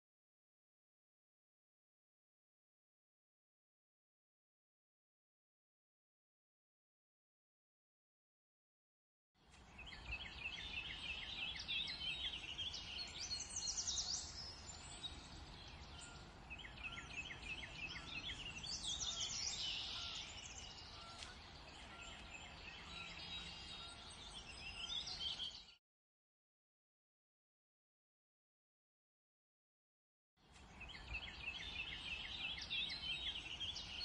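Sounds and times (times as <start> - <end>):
small birds singing and chirping: 9.4 - 25.8, 30.4 - 34.0.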